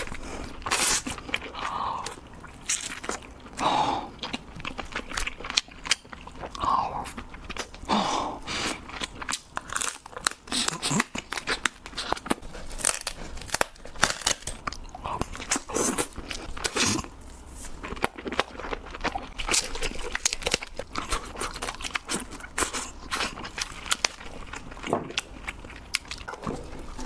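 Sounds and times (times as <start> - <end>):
chewing: 0.0 - 27.0
crab shell crunching: 8.7 - 27.0.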